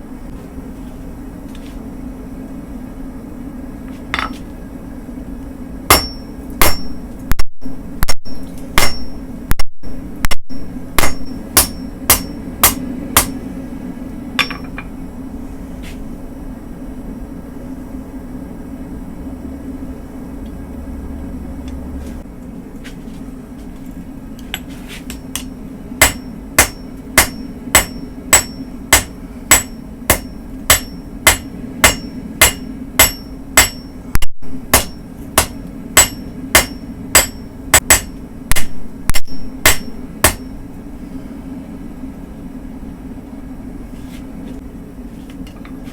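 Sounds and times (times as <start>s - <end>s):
continuous low hum: 0.0s - 45.9s
hammer striking steel on anvil: 4.2s - 4.5s, 5.9s - 7.1s, 8.2s - 9.2s, 10.5s - 13.4s, 14.4s - 14.9s, 24.5s - 40.6s.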